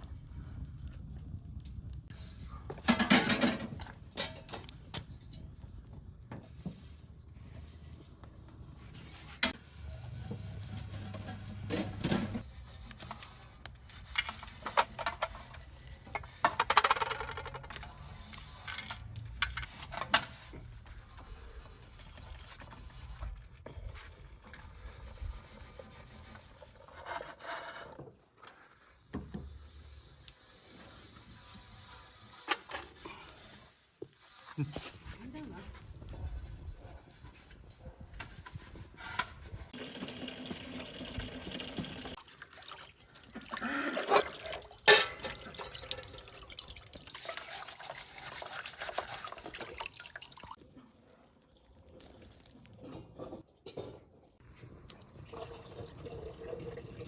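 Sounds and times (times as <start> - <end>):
hand rubbing and scraping: 5.5 - 39.8.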